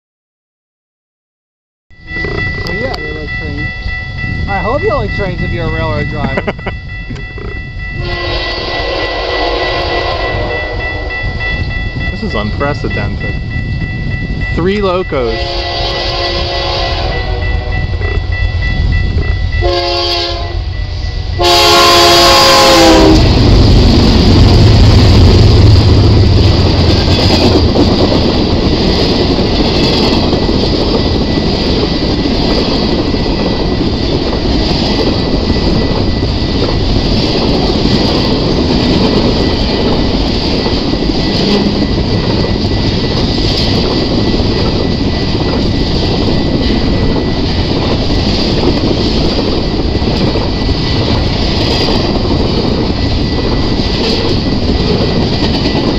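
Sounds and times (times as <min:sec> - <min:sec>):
diesel locomotives passing: 0:02.0 - 0:55.9
train horn blasts: 0:07.9 - 0:11.4, 0:15.3 - 0:18.3, 0:19.6 - 0:23.4.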